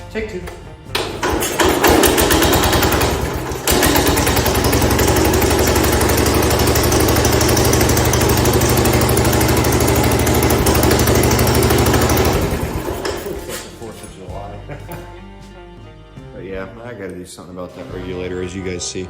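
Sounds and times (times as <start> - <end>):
tractor engine running: 0.9 - 13.8.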